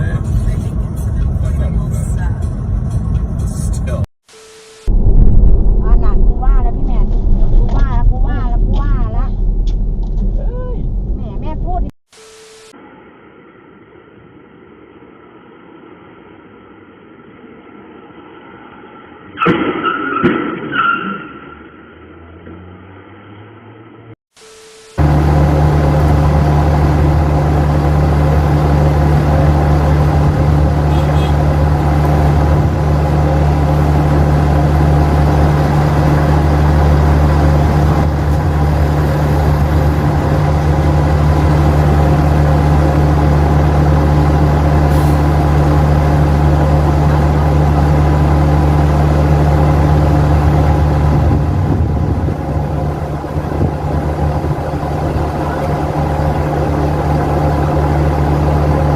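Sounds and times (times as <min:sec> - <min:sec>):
heavy vehicle engine droning: 0:04.8 - 0:11.9, 0:21.9 - 0:58.9.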